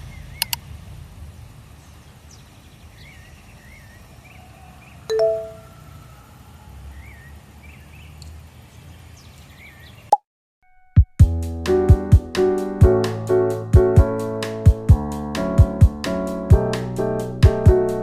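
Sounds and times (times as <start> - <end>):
bright ding: 5.1 - 5.6.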